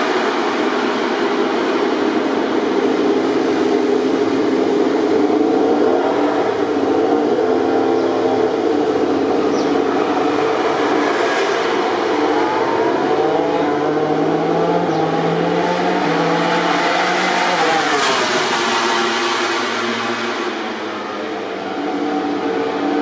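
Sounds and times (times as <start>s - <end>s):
racing motorcycle engines revving: 0.0s - 23.0s.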